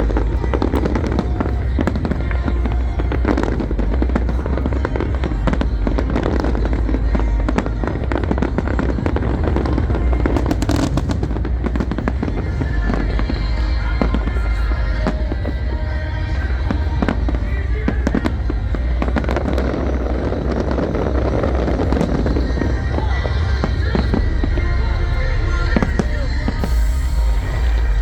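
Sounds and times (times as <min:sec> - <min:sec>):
firework bursts and bangs: 0:00.0 - 0:14.4
loud music with heavy bass: 0:00.0 - 0:28.0.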